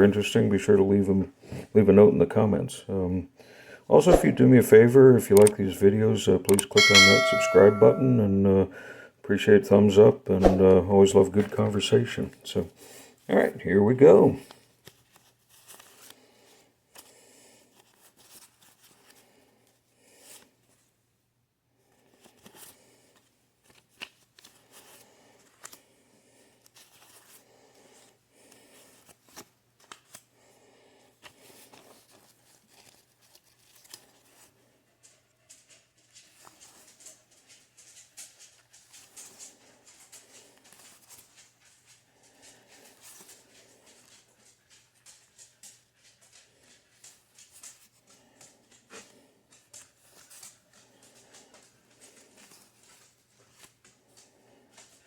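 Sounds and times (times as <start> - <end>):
banknotes rustling and flicking: 14.3 - 19.4, 22.0 - 55.0.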